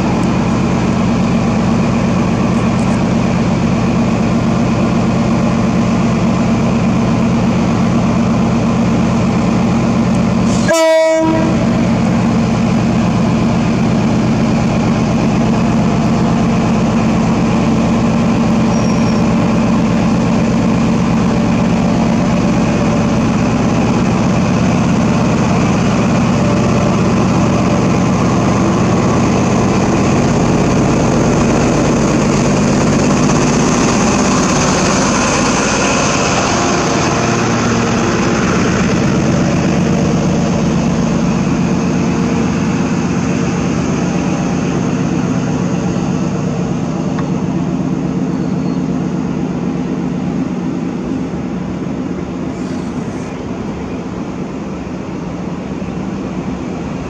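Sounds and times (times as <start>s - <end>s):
diesel train engine running: 0.0s - 57.0s
train horn blast: 10.4s - 11.9s.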